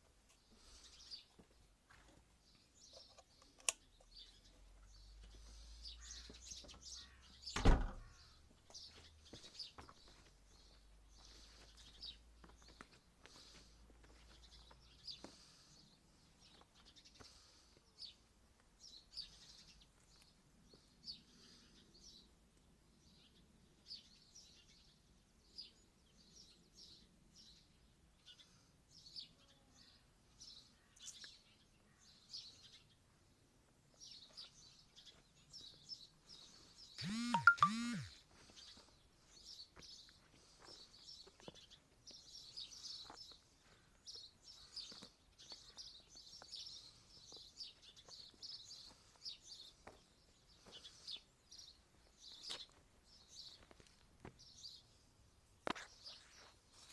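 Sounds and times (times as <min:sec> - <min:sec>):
small birds chirping: 0:00.0 - 0:56.9
sharp thump: 0:07.6 - 0:08.0.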